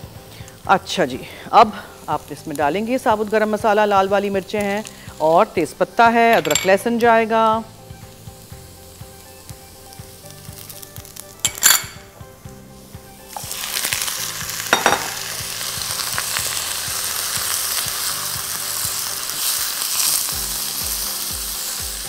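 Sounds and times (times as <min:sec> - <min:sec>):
spices frying in hot oil: 0:00.0 - 0:22.0
utensils clattering: 0:06.3 - 0:06.8, 0:11.4 - 0:12.1, 0:14.7 - 0:15.3.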